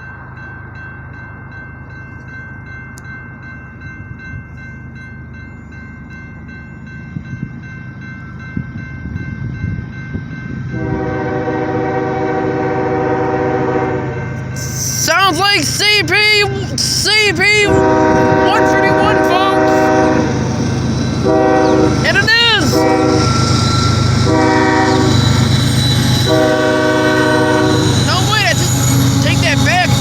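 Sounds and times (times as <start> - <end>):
locomotive engine rumble: 0.0 - 30.0
railroad crossing bell ringing: 0.0 - 30.0
locomotive air horn: 10.7 - 15.2, 16.8 - 20.4, 21.2 - 30.0.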